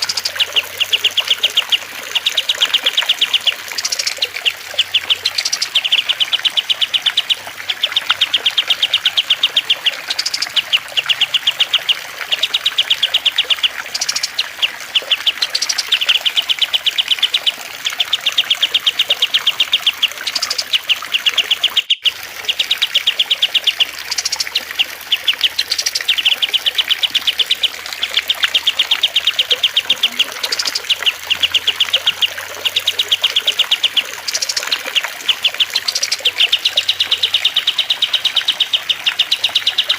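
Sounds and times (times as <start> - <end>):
bird chirps: 0.0 - 39.9
trickling water: 0.0 - 39.9
small bird trilling: 19.0 - 22.1.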